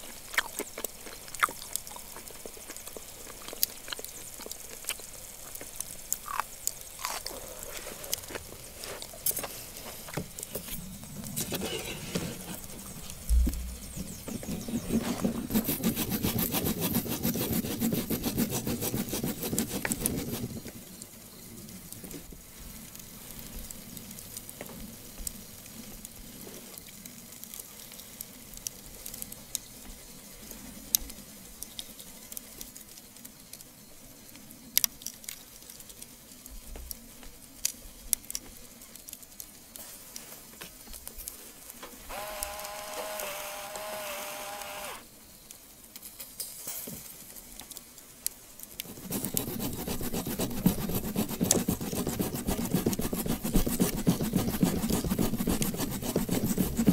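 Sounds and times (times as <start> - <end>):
meat sizzling over fire: 0.0 - 51.6
rasping scraping noise: 7.0 - 20.6, 48.8 - 56.9.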